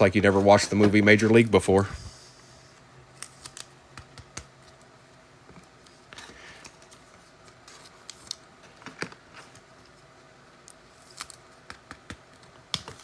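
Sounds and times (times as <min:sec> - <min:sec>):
cards clicking and tapping: 0:03.2 - 0:04.8, 0:11.1 - 0:13.0.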